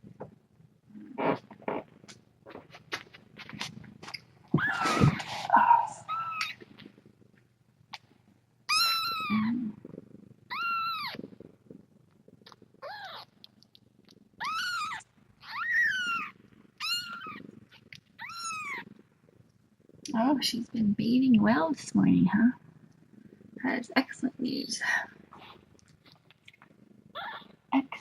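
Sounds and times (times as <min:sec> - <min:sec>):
kitten meowing: 0:04.6 - 0:06.6, 0:08.7 - 0:09.7, 0:10.5 - 0:11.2, 0:12.8 - 0:13.3, 0:14.4 - 0:17.4, 0:18.2 - 0:18.8, 0:27.2 - 0:27.5.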